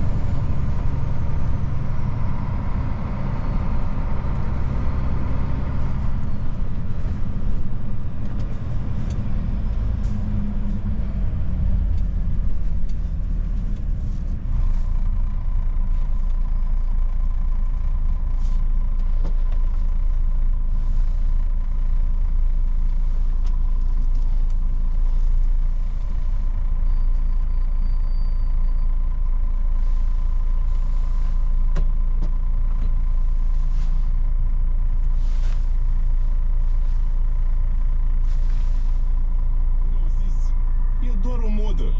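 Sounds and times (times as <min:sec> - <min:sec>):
diesel truck engine rumbling: 0:00.0 - 0:41.9.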